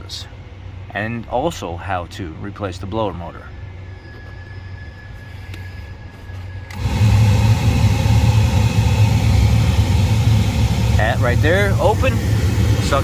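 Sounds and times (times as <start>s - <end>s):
heater blower fan rushing air: 6.1s - 13.0s.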